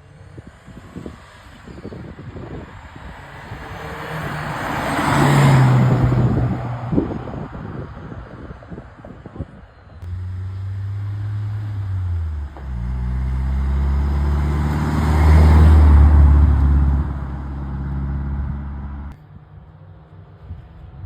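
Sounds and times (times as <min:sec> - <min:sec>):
car engine driving past: 0:03.0 - 0:07.2, 0:10.0 - 0:19.2.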